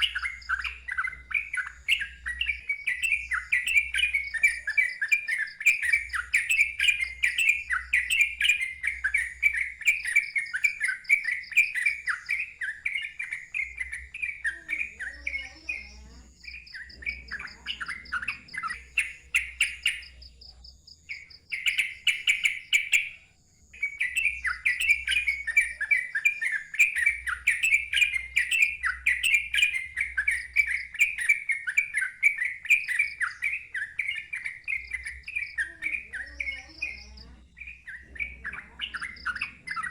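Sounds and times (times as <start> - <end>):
bird singing chirping notes: 0.0 - 39.9.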